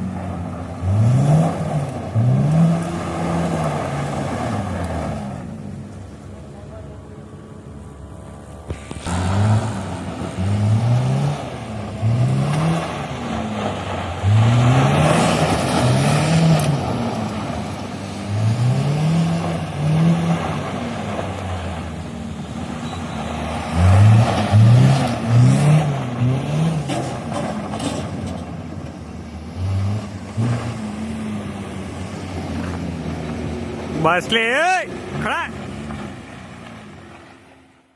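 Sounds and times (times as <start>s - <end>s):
petrol engine idling and revving: 0.0s - 37.9s.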